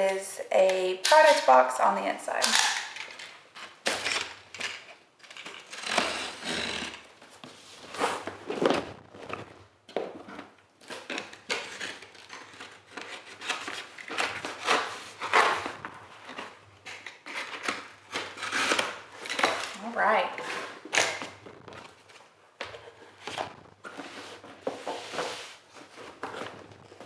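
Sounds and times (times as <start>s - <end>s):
cardboard box scraping and rustling: 7.5s - 9.6s.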